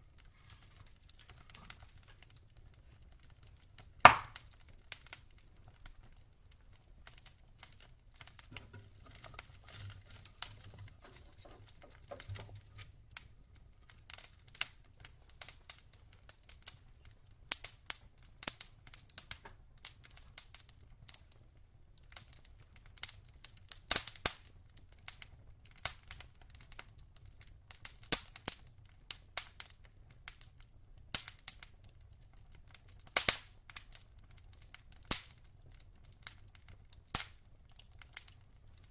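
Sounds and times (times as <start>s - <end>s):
burning wood popping and snapping: 0.0s - 38.9s
log fire crackling: 0.0s - 38.9s.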